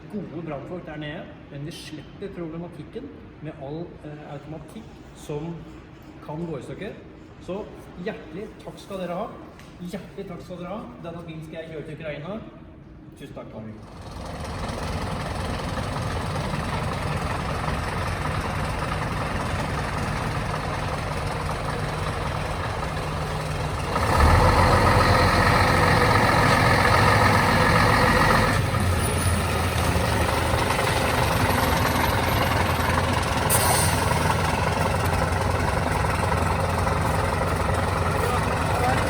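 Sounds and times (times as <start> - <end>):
fire truck engine running: 13.8 - 39.0.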